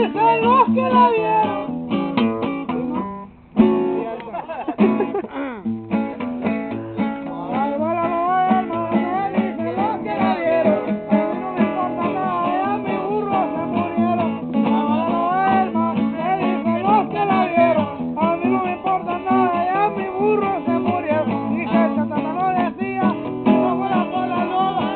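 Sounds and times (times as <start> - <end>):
person singing: 0.0 - 1.7, 7.0 - 24.9
acoustic guitar strumming: 0.0 - 24.9.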